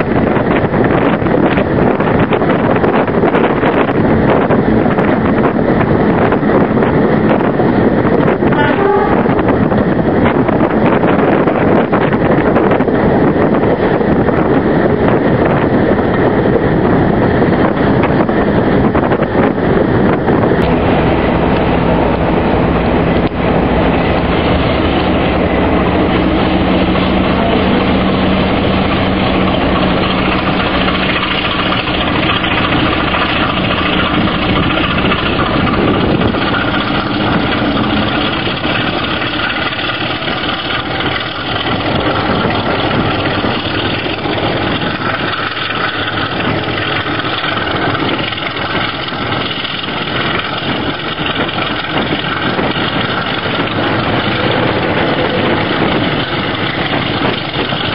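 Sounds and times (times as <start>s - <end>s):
diesel locomotive engine running: 0.0s - 57.9s
held low tone: 6.3s - 11.6s, 20.1s - 49.6s, 52.2s - 57.9s.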